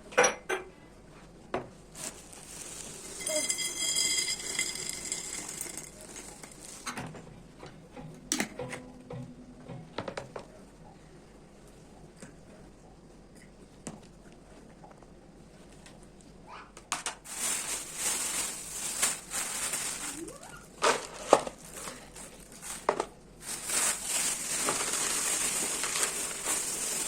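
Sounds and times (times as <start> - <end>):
containers rattling: 2.0 - 6.9, 17.3 - 20.2, 20.8 - 27.0
kitchen utensils clinking: 2.6 - 7.0.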